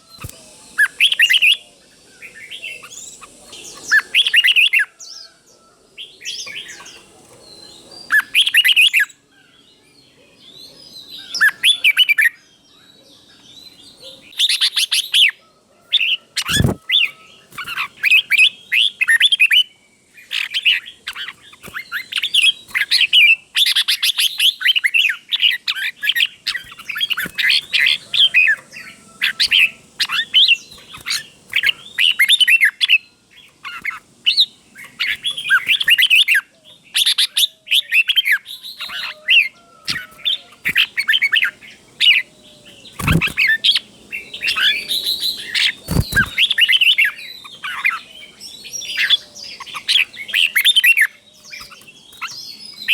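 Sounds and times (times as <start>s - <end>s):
bulbul singing: 0.0s - 5.2s, 16.0s - 52.9s.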